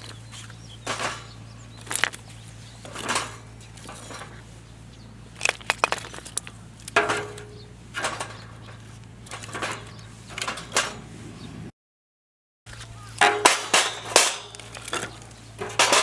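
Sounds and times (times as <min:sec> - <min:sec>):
fire clicks and knocks: 0:05.4 - 0:10.9.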